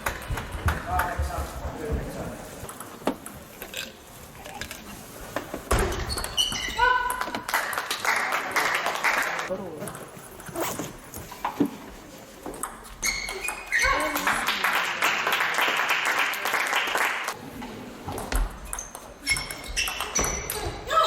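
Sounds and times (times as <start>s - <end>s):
crowd noise: 0.0s - 21.0s
shoe soles squeaking on floor: 5.7s - 7.2s, 10.4s - 11.6s, 12.8s - 14.2s, 18.2s - 21.0s.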